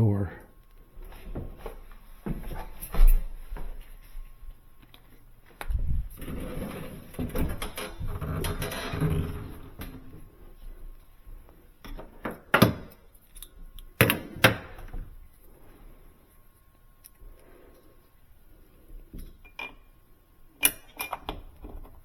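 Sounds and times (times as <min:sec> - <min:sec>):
rumbling movement: 0:05.6 - 0:10.7.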